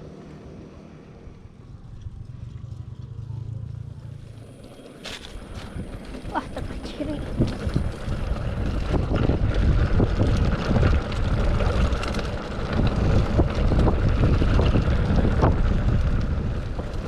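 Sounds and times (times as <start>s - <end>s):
wind buffeting microphone: 1.1s - 17.0s
small clicks and rattles: 4.4s - 17.0s.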